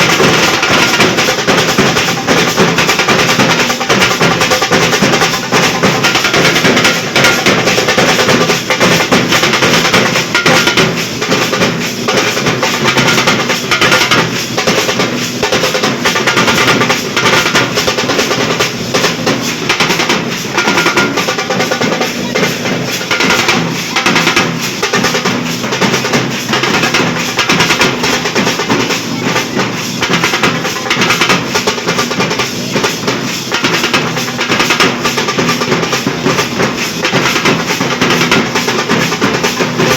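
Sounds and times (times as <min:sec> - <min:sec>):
barrel drums beaten fast: 0:00.0 - 0:39.9.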